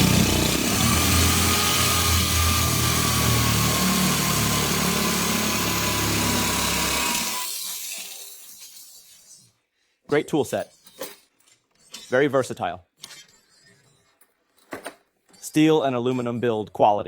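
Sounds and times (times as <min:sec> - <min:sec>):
electric drill motor whine: 0:00.0 - 0:08.3
drill bit grinding into ceramic: 0:00.0 - 0:09.6, 0:10.5 - 0:14.3.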